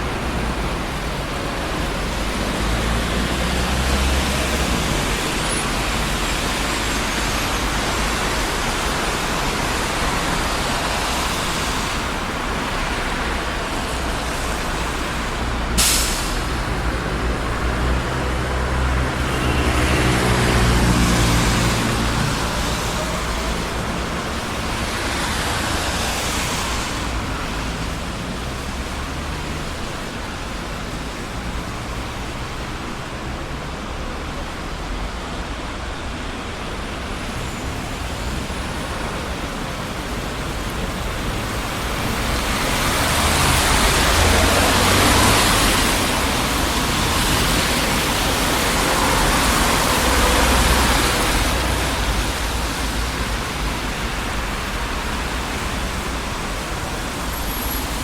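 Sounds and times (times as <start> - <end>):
road traffic rumble: 0.0 - 58.0
vehicles passing: 0.0 - 58.0
tyre hiss: 15.7 - 16.6.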